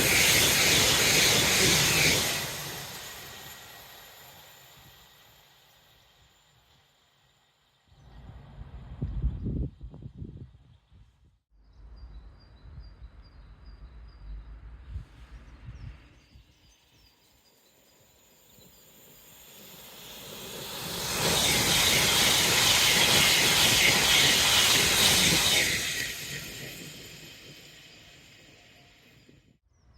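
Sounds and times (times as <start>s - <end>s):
train passing at speed: 0.0s - 9.9s, 17.8s - 29.6s.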